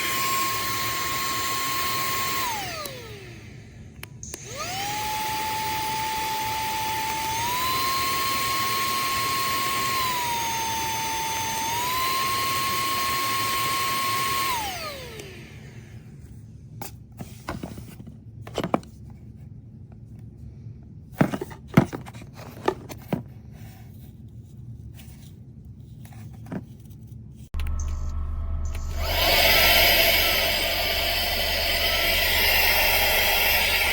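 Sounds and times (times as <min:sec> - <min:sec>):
handheld vacuum motor whine: 0:00.0 - 0:16.0, 0:27.6 - 0:33.9.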